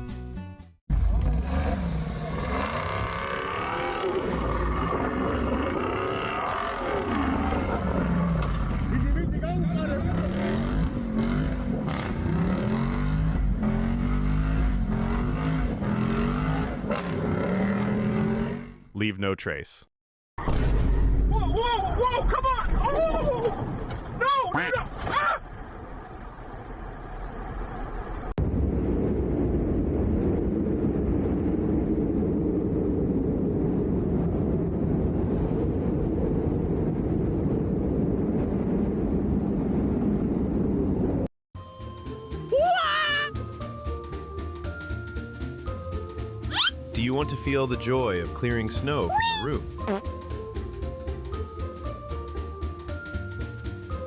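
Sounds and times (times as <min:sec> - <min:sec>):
engine revving: 0:00.9 - 0:18.9
loud low rumble: 0:25.5 - 0:41.3.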